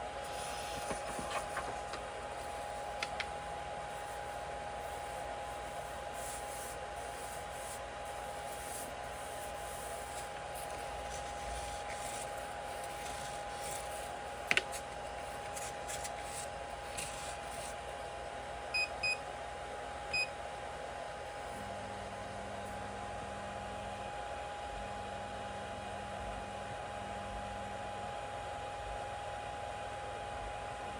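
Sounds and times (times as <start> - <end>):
three d printer whine: 0.0 - 23.0
fans humming: 0.0 - 30.9.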